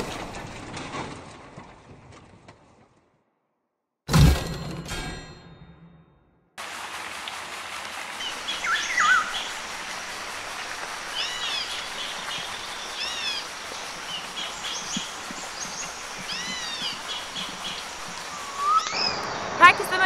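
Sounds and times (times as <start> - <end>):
rising and falling bird call: 8.2 - 9.6, 11.1 - 19.6
high bird chirps: 8.5 - 9.5, 14.3 - 19.4.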